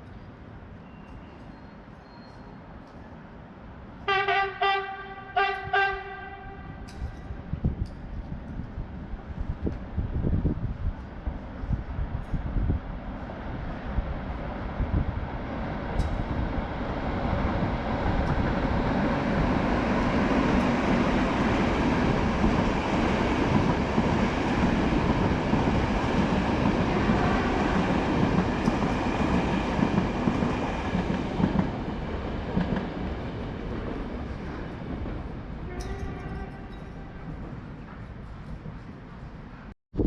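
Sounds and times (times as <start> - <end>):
electric train passing: 5.1 - 39.6.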